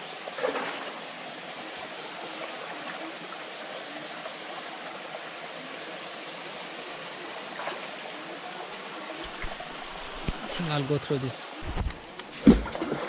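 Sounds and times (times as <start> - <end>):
water rushing over rocks: 7.4 - 12.1.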